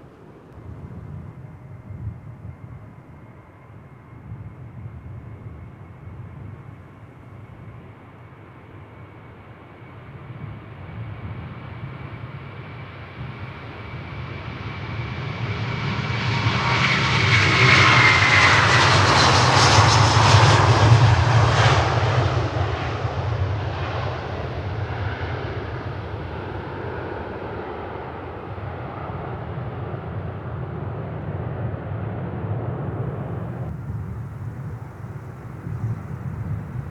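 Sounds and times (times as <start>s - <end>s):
jet airliner passing: 8.8s - 36.9s
high fan whine: 33.3s - 36.9s.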